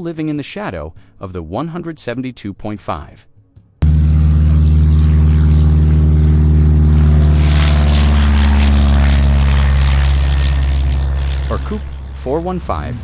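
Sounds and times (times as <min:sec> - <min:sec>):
light airplane engine running: 0:03.8 - 0:13.0.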